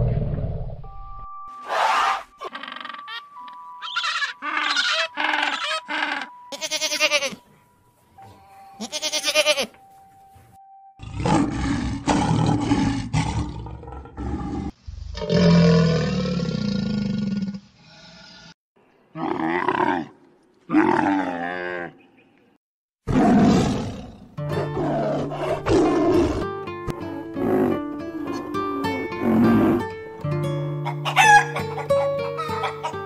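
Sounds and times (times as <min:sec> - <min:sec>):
penguin calling: 0:01.7 - 0:07.4
lion growling: 0:11.0 - 0:18.4
lion roar: 0:11.0 - 0:18.5, 0:23.1 - 0:26.4.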